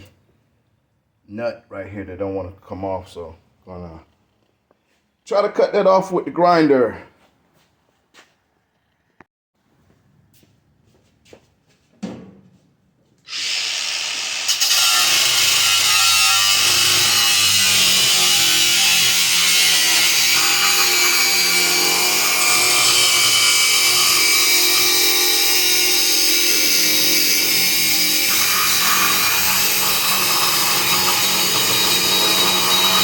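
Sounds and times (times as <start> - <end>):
angle grinder cutting metal: 13.3 - 33.0.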